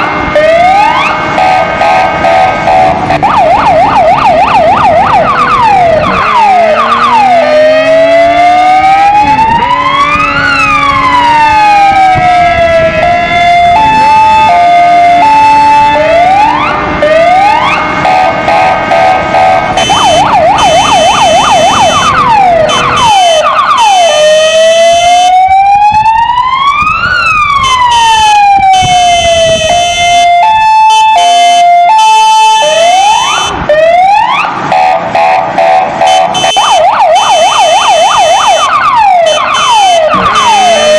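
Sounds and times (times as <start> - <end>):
electronic siren cycling tones: 0.0 - 40.9.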